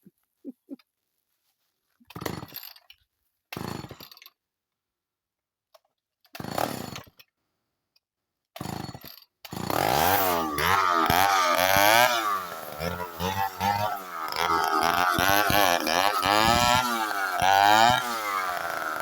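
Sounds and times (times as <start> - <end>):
chainsaw engine revving: 2.1 - 2.7, 3.6 - 4.0, 6.4 - 7.1, 8.6 - 19.0
chainsaw engine sputtering: 2.1 - 2.8, 3.6 - 4.2, 6.4 - 7.1, 8.6 - 19.0.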